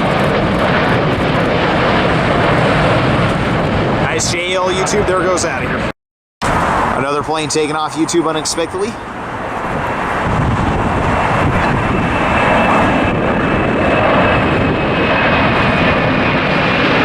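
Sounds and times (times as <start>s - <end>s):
high engine whine: 0.0s - 17.0s
jet airliner taking off: 0.0s - 17.0s.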